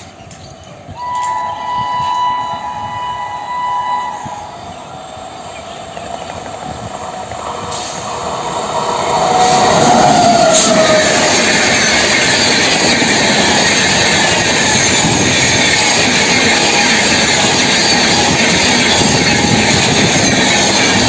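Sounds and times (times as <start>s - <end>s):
train passing: 0.0s - 21.0s
train horn blast: 1.0s - 4.8s.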